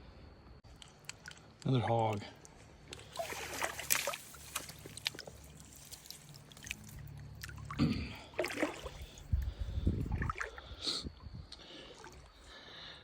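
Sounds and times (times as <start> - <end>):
water sloshing and trickling: 0.7 - 12.9
small splashes and knocks: 0.8 - 9.4, 10.0 - 10.6.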